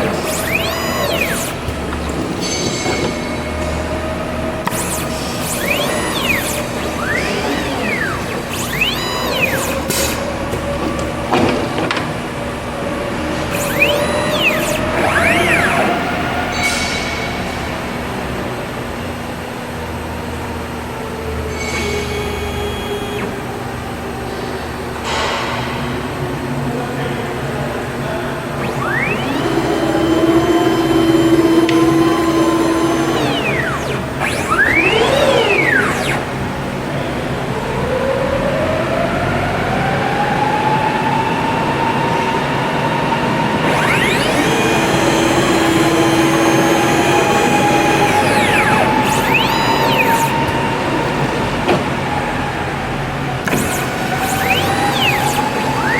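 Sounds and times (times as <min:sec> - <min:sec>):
axis motors whirring: 0:00.0 - 0:17.3, 0:21.7 - 0:24.3, 0:28.4 - 0:40.2, 0:43.2 - 0:55.9
high whining tones: 0:00.0 - 0:17.5, 0:21.6 - 0:24.1, 0:28.4 - 0:55.9
cnc router running: 0:00.0 - 0:25.2, 0:27.4 - 0:55.9
steady mechanical whir: 0:00.0 - 0:25.8, 0:26.4 - 0:55.9.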